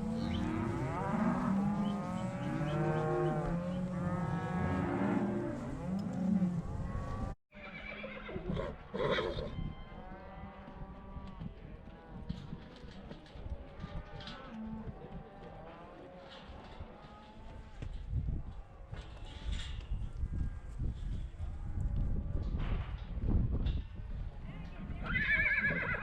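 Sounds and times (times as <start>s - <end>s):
cattle bawling: 0.0s - 7.1s.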